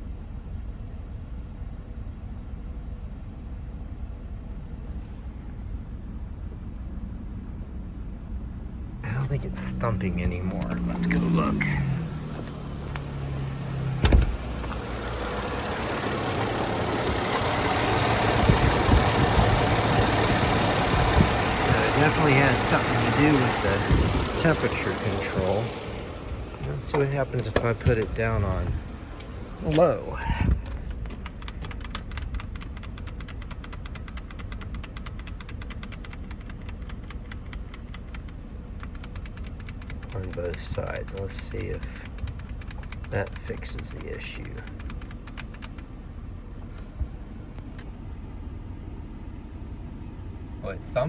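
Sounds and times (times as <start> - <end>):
car engine idling: 0.0 - 51.0
fast even engine ticking: 9.0 - 45.9
sharp clunk: 14.0 - 14.5.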